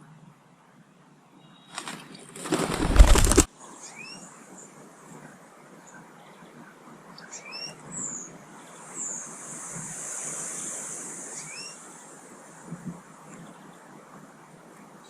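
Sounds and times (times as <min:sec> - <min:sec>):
high hiss: 0:08.8 - 0:12.8
upward-sweeping bird calls: 0:11.2 - 0:11.9.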